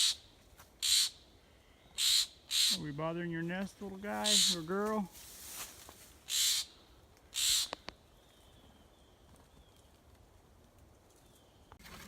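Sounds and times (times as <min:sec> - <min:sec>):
animal hissing calls: 0:00.0 - 0:00.2, 0:00.8 - 0:01.2, 0:02.0 - 0:02.8, 0:06.3 - 0:07.8.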